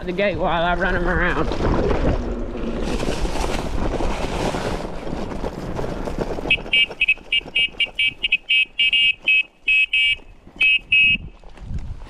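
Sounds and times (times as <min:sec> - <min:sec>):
horn short beeps: 0:06.5 - 0:11.3
wind on microphone: 0:10.0 - 0:12.0.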